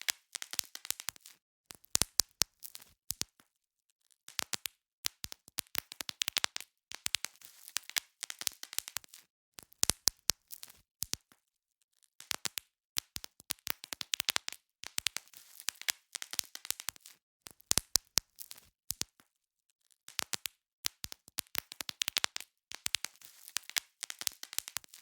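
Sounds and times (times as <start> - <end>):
bubble wrap popping: 0.0 - 3.4, 4.3 - 11.4, 12.2 - 19.2, 20.1 - 25.0
plastic crinkling: 22.1 - 25.0.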